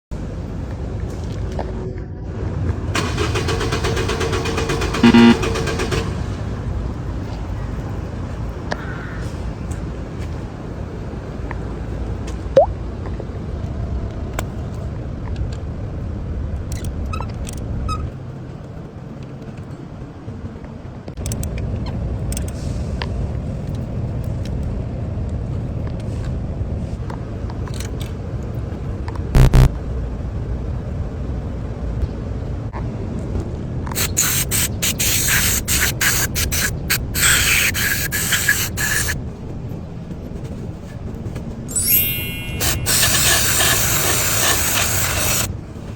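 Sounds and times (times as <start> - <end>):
car engine running: 3.0 - 6.4
aerosol spray hissing: 34.0 - 39.2, 42.0 - 45.5
short rising squeak: 41.7 - 43.8.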